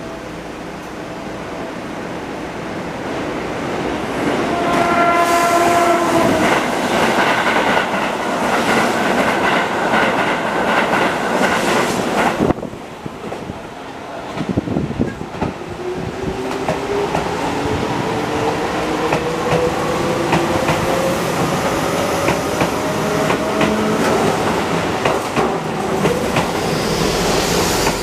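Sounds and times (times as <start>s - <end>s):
stationary train humming: 0.0s - 28.0s
train passing at speed: 0.0s - 28.0s
train horn: 4.4s - 6.6s.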